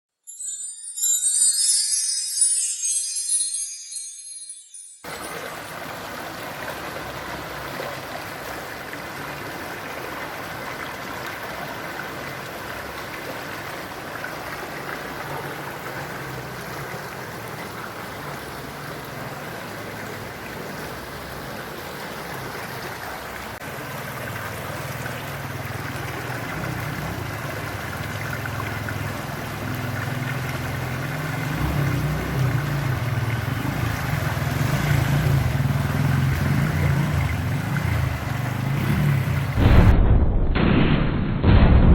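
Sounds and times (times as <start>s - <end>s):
floodwater rushing: 0.6s - 39.9s
heavy rain: 5.1s - 40.0s
vehicle engine approaching: 23.6s - 39.6s.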